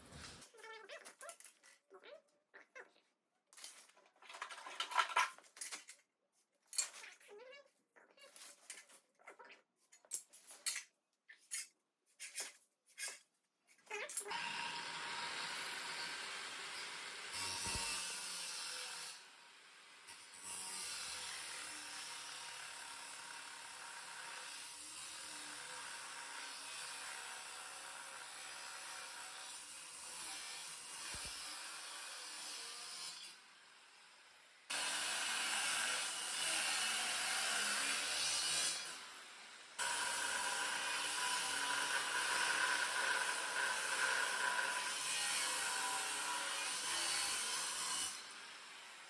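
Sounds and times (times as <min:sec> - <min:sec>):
power tool grinding steel: 0:14.3 - 0:19.4, 0:20.1 - 0:34.0, 0:34.7 - 0:49.0.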